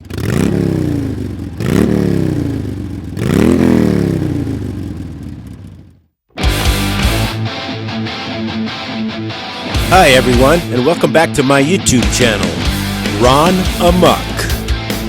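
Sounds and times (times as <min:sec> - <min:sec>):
motorcycle engine revving: 0:00.0 - 0:06.2.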